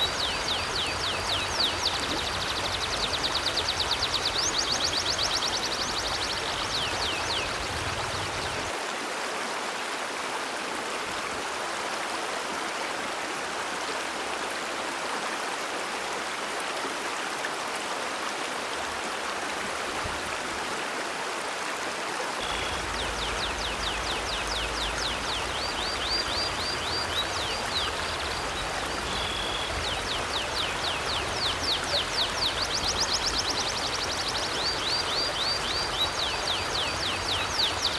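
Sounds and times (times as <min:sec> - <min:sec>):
river water rushing: 0:00.0 - 0:37.9
bird chirping trill: 0:22.4 - 0:37.9.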